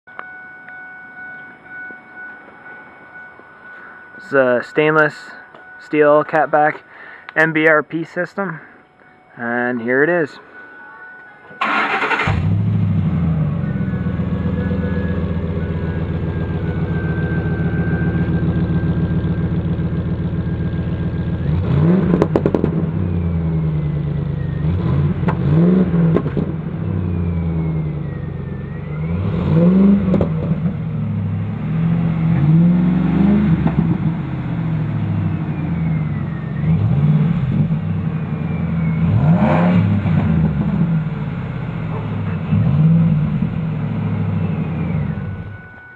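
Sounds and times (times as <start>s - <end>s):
engine throttle blips: 11.5s - 45.9s
truck engine idling: 11.6s - 21.6s.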